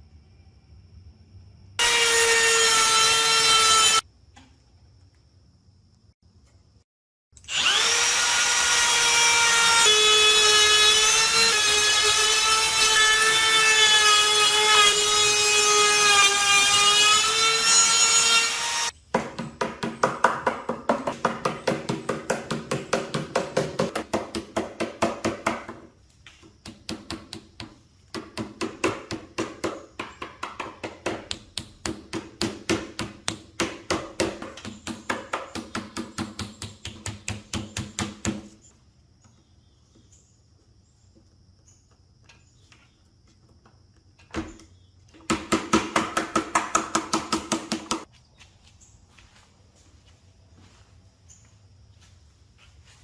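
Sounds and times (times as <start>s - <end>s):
jigsaw motor whine: 7.4s - 18.9s.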